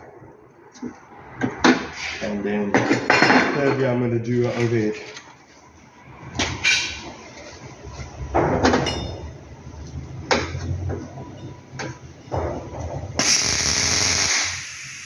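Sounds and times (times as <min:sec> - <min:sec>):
steady low hum: 0:13.2 - 0:15.0.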